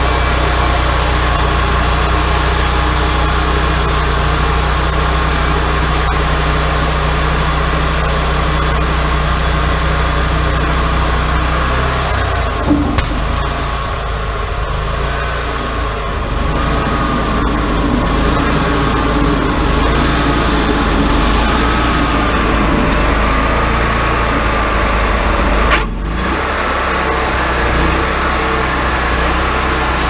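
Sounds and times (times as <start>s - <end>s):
sawmill engine running: 0.0s - 30.0s
short sharp knock: 12.6s - 13.6s.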